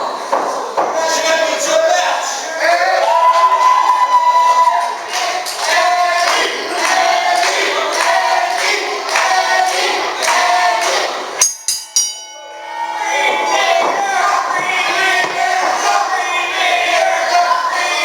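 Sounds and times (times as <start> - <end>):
group of voices chanting: 4.8 - 11.4, 12.6 - 18.0
ring bell strikes: 11.4 - 14.5.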